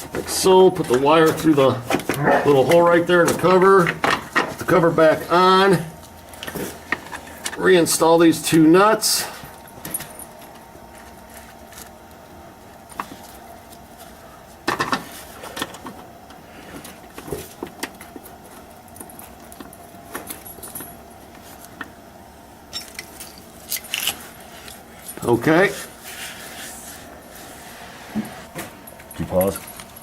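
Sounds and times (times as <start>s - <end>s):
hand tools clinking on metal: 22.7s - 25.4s, 28.9s - 30.0s.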